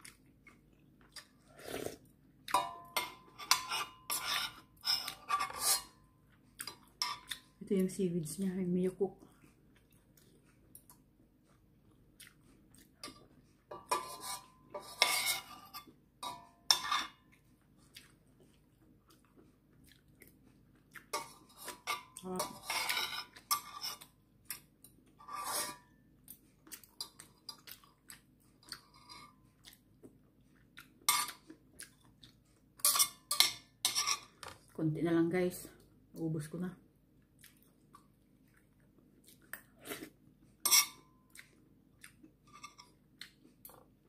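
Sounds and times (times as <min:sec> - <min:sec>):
utensils clinking on metal pot: 0:02.5 - 0:06.0, 0:13.7 - 0:17.2, 0:32.8 - 0:34.3.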